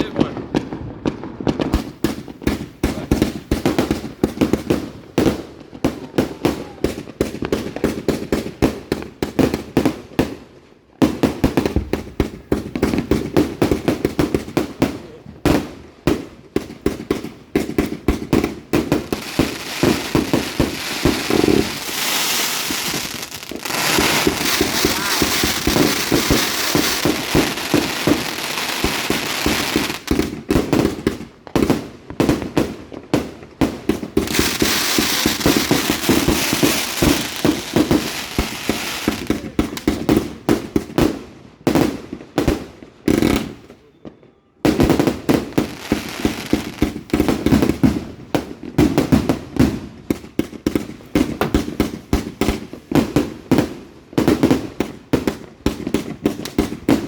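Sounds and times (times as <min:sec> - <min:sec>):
fireworks launching and bursting: 0:00.0 - 0:10.4, 0:11.0 - 0:43.8, 0:44.7 - 0:57.0.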